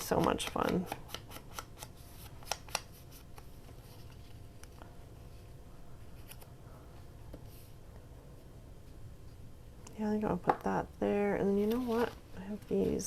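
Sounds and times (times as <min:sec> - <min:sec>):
paper handling noises: 0:00.0 - 0:07.8, 0:11.4 - 0:13.0
faint steady hum: 0:00.0 - 0:13.0.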